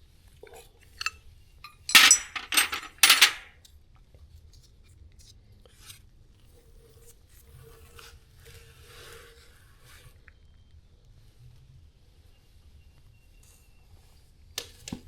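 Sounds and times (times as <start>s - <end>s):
metal tools clinking: 1.7s - 3.5s.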